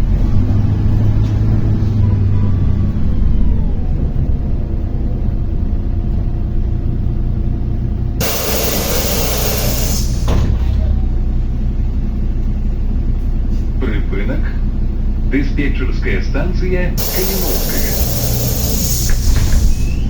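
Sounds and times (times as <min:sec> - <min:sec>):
bus engine rumble with whine: 0:00.0 - 0:20.0
compressed air hiss: 0:08.2 - 0:10.3, 0:17.0 - 0:20.0.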